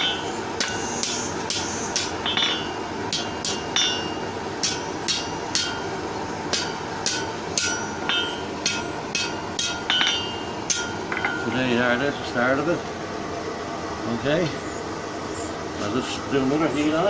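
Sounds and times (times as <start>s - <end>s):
hammer striking steel on anvil: 0.0s - 11.8s.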